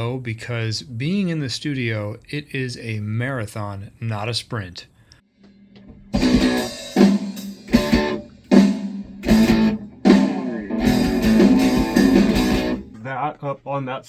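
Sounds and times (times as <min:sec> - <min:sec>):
rock band playing: 0:05.8 - 0:13.0.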